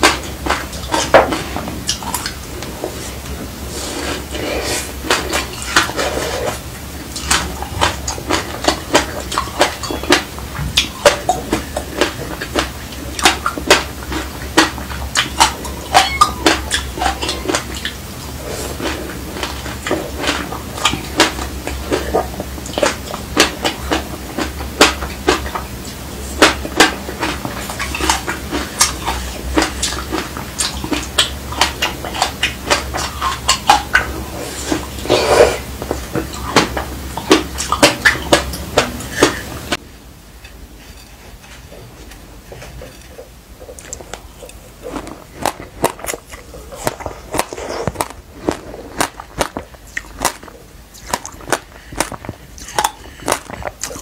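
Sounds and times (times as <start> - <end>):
crunchy chewing: 0.0 - 39.8, 40.8 - 54.0
low steady hum: 0.0 - 54.0.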